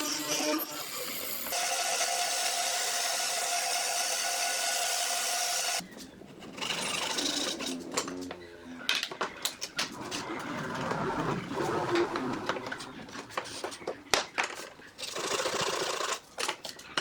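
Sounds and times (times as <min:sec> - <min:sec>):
workshop noise: 0:00.0 - 0:15.0.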